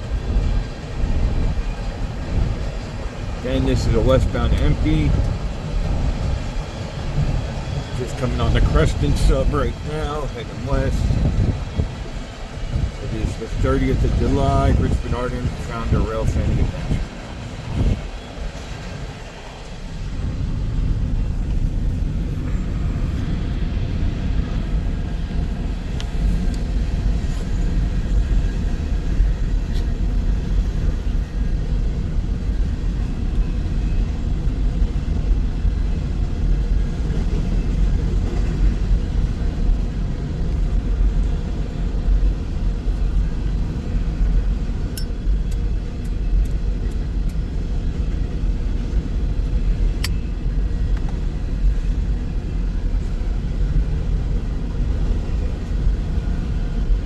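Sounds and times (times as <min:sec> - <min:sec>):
freight train wheels rumbling: 0:00.0 - 0:57.0.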